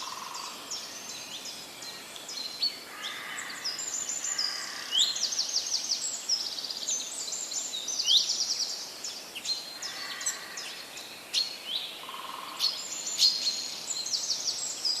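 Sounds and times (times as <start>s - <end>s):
songbirds singing: 0.0s - 15.0s
steady outdoor hiss: 0.0s - 15.0s.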